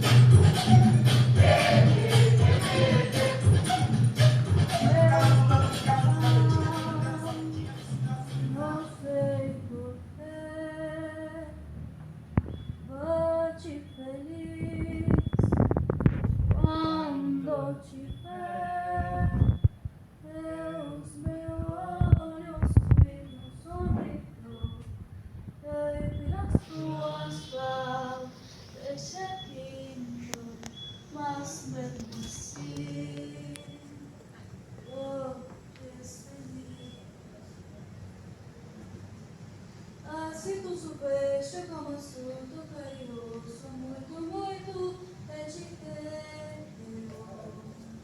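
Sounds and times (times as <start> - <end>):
woman singing wordless notes: 0.0 - 11.7, 12.9 - 15.2, 16.6 - 19.5, 20.2 - 24.9, 25.6 - 37.1, 40.0 - 48.0
woman singing long held notes: 4.6 - 11.6, 25.6 - 34.2.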